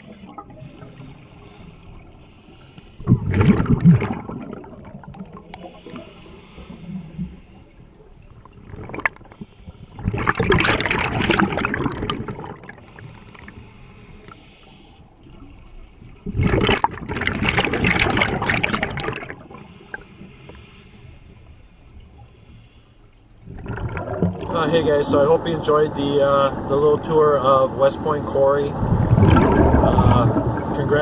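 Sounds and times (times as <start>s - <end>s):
breathing through regulator: 0.3s - 3.2s, 5.6s - 7.9s, 9.2s - 10.2s, 12.7s - 16.0s, 19.5s - 23.2s
gurgling rush of exhaled bubbles: 3.0s - 6.2s, 8.4s - 9.4s, 10.0s - 12.9s, 16.2s - 19.6s, 23.4s - 27.8s, 28.5s - 31.0s.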